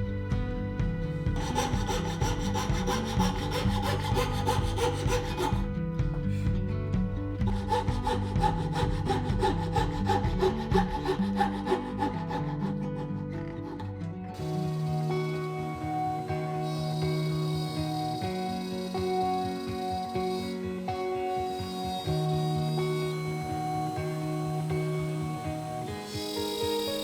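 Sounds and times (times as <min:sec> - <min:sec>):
background music: 0:00.0 - 0:27.0
hand saw cutting wood: 0:01.4 - 0:05.7, 0:07.4 - 0:15.2.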